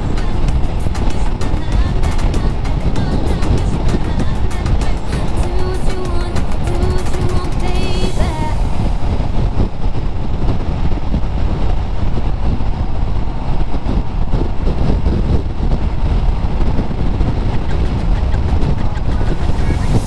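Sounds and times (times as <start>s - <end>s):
wind rumble on microphone: 8.2s - 20.0s.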